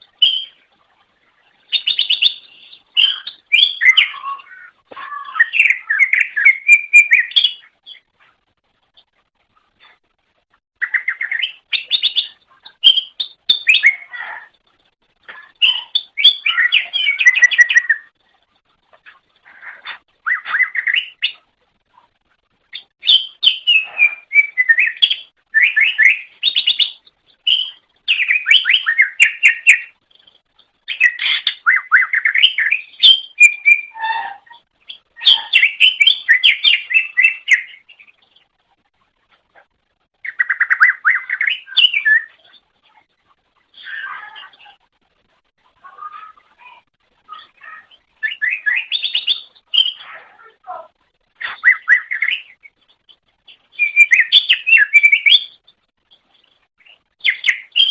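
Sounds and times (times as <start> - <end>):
bird chattering and trilling: 1.6 - 8.1, 10.8 - 14.6, 15.3 - 18.2, 19.0 - 21.5, 22.6 - 38.4, 40.2 - 43.1, 45.8 - 57.9.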